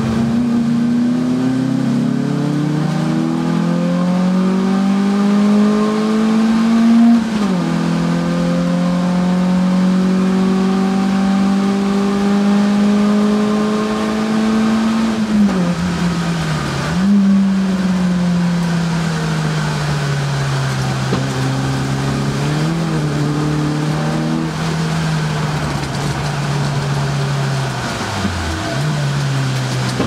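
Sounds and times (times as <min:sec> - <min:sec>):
car engine at high revs: 0:00.0 - 0:30.0.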